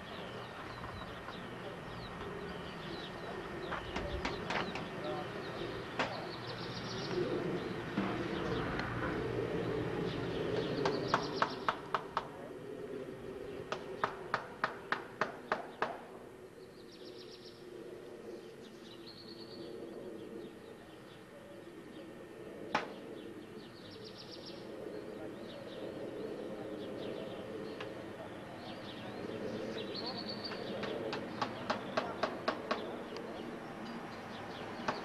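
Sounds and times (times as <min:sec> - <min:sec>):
small birds chirping: 0:00.0 - 0:12.5, 0:13.3 - 0:35.0.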